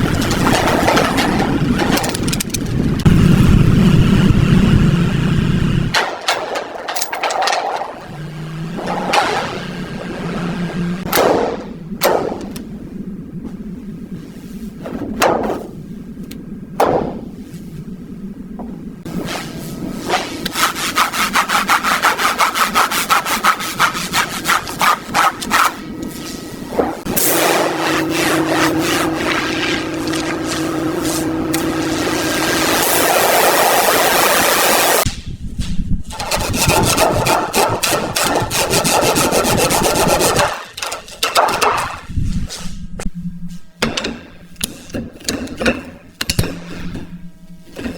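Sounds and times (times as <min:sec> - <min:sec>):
handling noise: 0:05.9 - 0:19.1
rapid scraping strokes: 0:19.1 - 0:34.1, 0:36.1 - 0:41.3.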